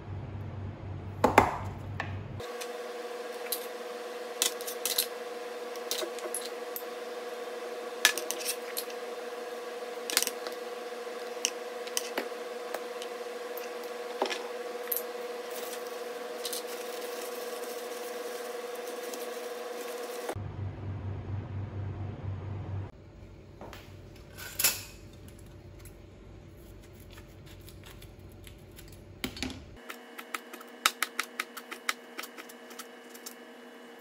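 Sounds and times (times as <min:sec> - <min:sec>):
steady electrical hum: 0:00.0 - 0:34.0
gloved hand mixing salad: 0:15.3 - 0:20.3.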